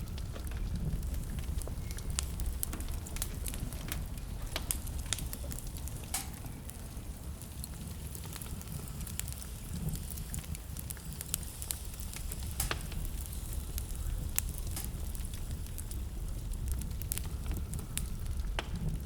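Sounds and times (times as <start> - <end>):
low steady rumble: 0.0 - 19.0
wood fire crackling: 0.0 - 19.0.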